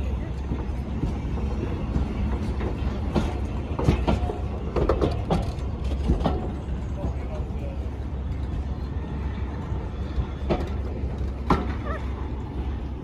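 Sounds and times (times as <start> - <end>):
train wheels clicking over rail joints: 0.2 - 7.6, 9.8 - 12.2.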